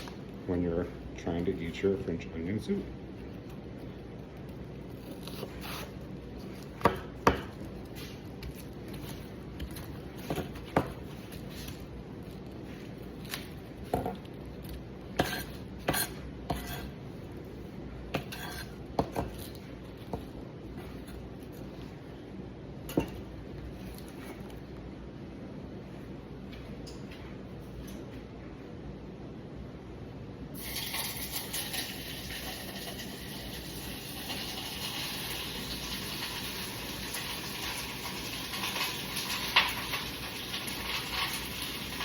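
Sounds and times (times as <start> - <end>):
knife chopping on cutting board: 6.8 - 7.6, 8.4 - 11.1, 15.1 - 16.9, 18.1 - 20.9.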